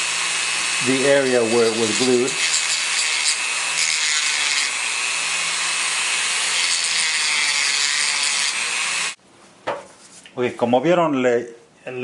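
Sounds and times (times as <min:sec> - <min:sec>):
small power tool grinding: 0:00.0 - 0:09.2.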